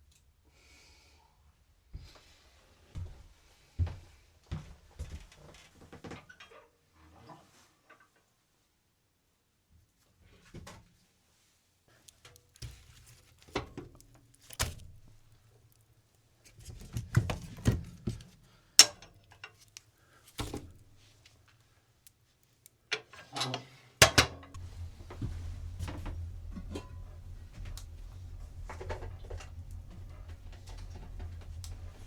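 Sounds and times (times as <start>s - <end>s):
steady low rumble: 24.6s - 32.0s.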